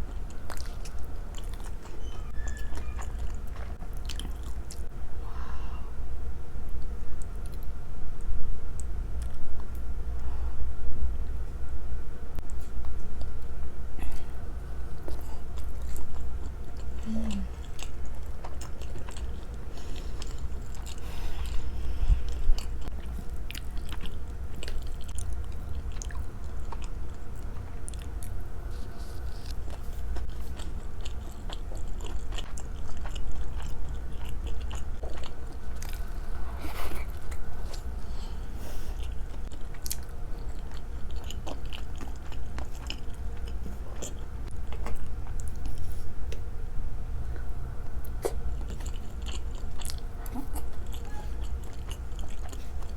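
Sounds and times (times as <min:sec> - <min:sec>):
chewing and biting food: 0:00.0 - 0:04.9, 0:15.0 - 0:38.1, 0:39.0 - 0:46.4, 0:48.0 - 0:52.9
steady low hum: 0:00.0 - 0:52.9.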